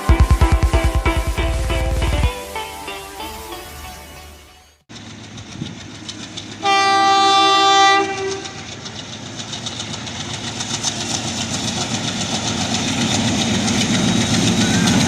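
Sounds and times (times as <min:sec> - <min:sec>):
train air horn blast: 0:00.0 - 0:04.7, 0:06.6 - 0:08.7
train wheels clattering on rails: 0:04.9 - 0:15.0.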